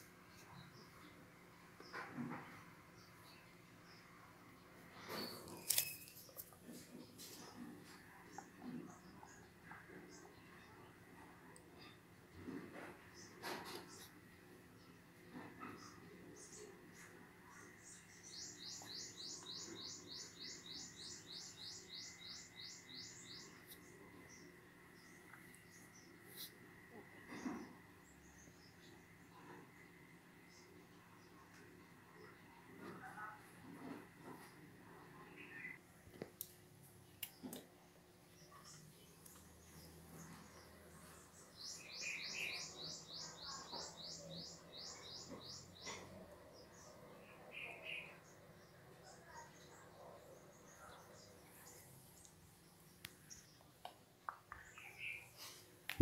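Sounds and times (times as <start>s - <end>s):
bird chirping: 5.1s - 7.2s, 17.5s - 26.2s, 38.3s - 56.0s.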